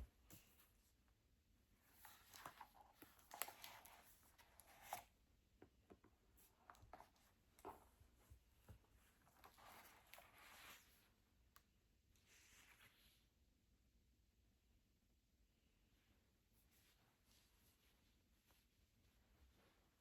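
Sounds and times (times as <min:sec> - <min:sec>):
book pages rustling: 0:01.9 - 0:05.1, 0:06.4 - 0:11.1.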